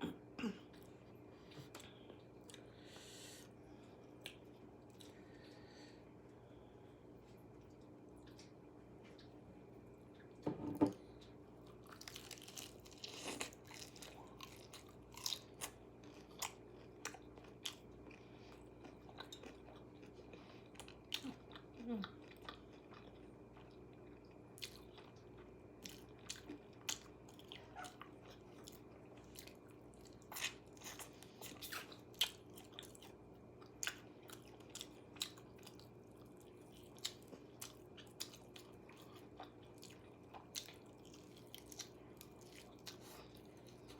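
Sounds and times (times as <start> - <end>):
faint steady hum: 0.0 - 43.9
crunching bites and chewing: 11.7 - 20.2.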